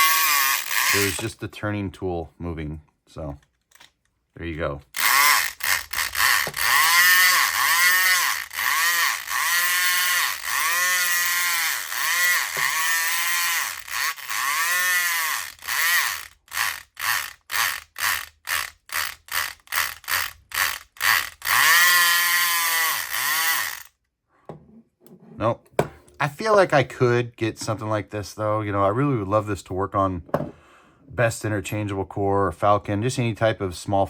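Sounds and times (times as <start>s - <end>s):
electric lock pick gun buzzing: 0.0s - 1.3s, 4.9s - 24.0s.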